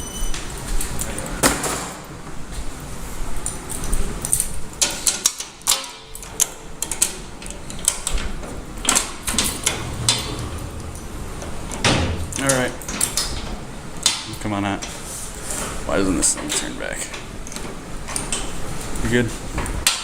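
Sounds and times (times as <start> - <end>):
keys and hardware rattling: 3.4 - 13.7.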